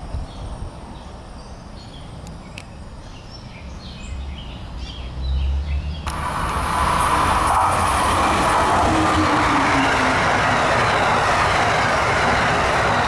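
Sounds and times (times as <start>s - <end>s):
small birds chirping: 0.3s - 6.1s
train rushing past: 6.1s - 13.0s.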